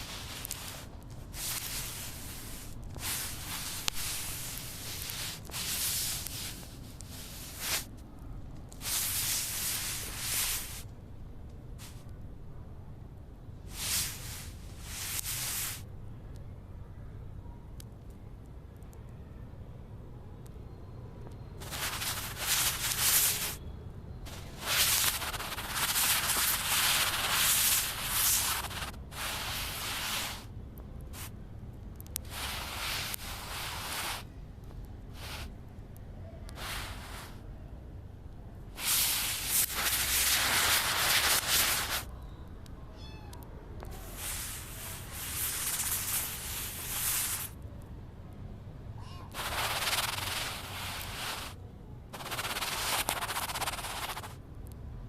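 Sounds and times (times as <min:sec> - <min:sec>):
kitten meowing: 0:42.9 - 0:43.5, 0:49.0 - 0:49.4.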